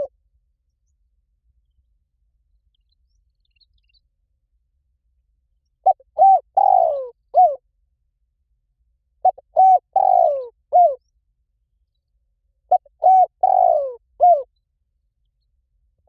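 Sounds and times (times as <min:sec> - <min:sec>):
dove cooing: 0:05.8 - 0:07.6, 0:09.2 - 0:11.0, 0:12.7 - 0:14.5.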